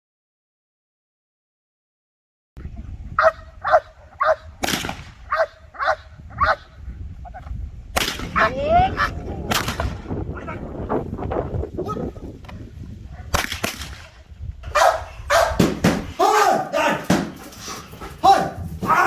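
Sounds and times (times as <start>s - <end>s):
dog barking and yelping: 3.2s - 4.5s, 5.2s - 7.5s, 8.3s - 9.3s, 10.3s - 10.7s, 14.7s - 15.6s
sharp cracks: 3.6s - 6.6s, 7.9s - 8.6s, 9.4s - 10.3s, 13.3s - 14.3s.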